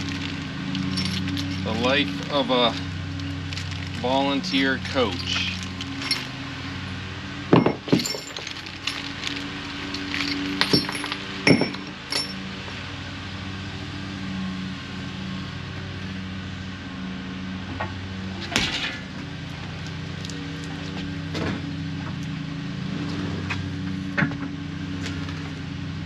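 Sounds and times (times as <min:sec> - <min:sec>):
metal tools clinking on steel: 0:00.0 - 0:02.8, 0:03.6 - 0:06.4, 0:07.5 - 0:12.4
low hum: 0:00.0 - 0:12.5
sharp metal clanks: 0:10.0 - 0:12.4.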